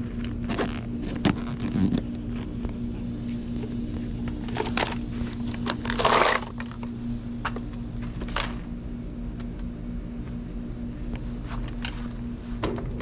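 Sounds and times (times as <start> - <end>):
handling noise: 0.0 - 8.7, 11.0 - 13.0
low machine hum: 0.0 - 13.0.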